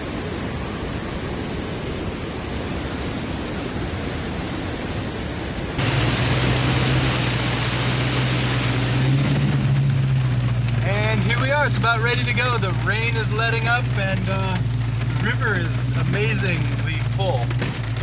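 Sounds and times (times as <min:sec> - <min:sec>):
car engine running: 0:05.8 - 0:18.0
heavy rain: 0:05.8 - 0:18.0.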